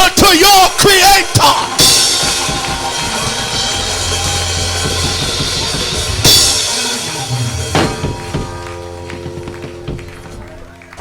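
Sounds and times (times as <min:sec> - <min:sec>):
drum kit playing: 0:01.6 - 0:11.0
cymbal crash: 0:01.8 - 0:09.1
heavy drum hits: 0:01.8 - 0:10.5
held bass note: 0:03.6 - 0:10.5.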